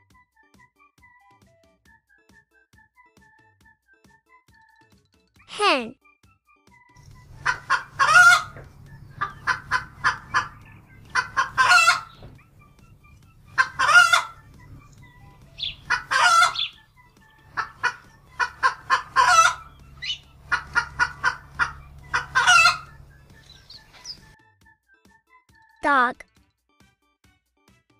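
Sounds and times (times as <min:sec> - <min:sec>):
hens clucking and cackling: 0:07.0 - 0:24.3.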